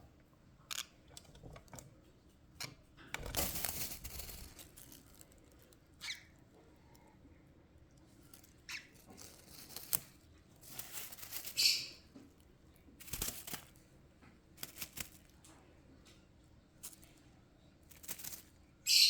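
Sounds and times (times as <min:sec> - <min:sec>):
rustling: 0:00.7 - 0:07.0, 0:08.0 - 0:13.9, 0:14.5 - 0:15.5, 0:17.8 - 0:18.6.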